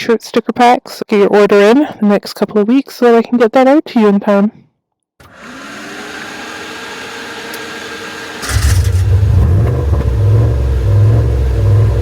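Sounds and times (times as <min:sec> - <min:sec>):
steady whir: 0:05.2 - 0:12.0
deep engine rumble revving: 0:08.4 - 0:12.0.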